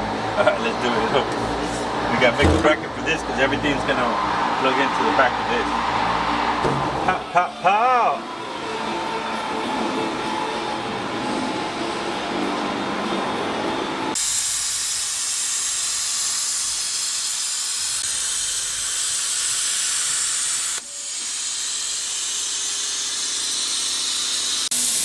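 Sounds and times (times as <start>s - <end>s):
steady spraying hiss: 14.2s - 25.0s.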